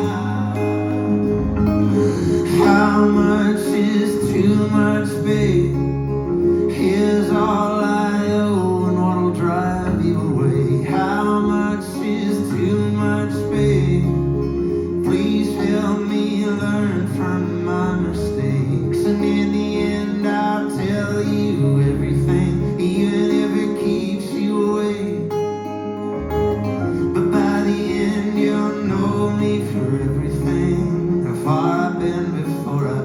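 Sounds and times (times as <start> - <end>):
bass line: 0.0 - 33.0
strummed acoustic guitar: 0.0 - 33.0
sustained chords: 0.0 - 33.0.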